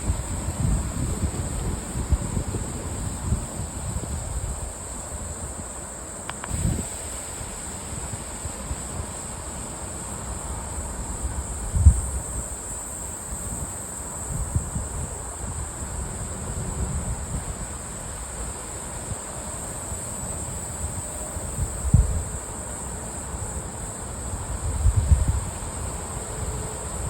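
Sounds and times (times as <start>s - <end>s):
wind buffeting microphone: 0.0s - 5.4s, 6.4s - 9.1s, 21.5s - 22.4s, 24.5s - 25.9s
insects chirring: 0.0s - 27.0s.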